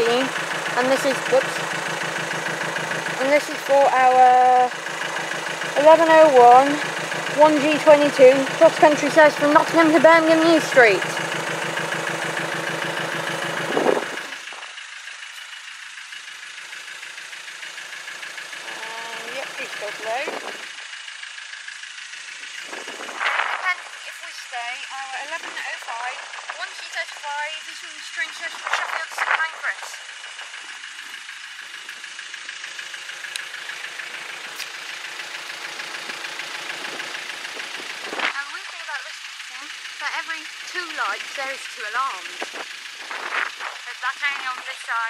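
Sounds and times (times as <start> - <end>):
level crossing alarm pulsing: 0.0 - 14.6, 23.5 - 34.5, 38.4 - 44.9
train diesel engine running: 0.0 - 45.0.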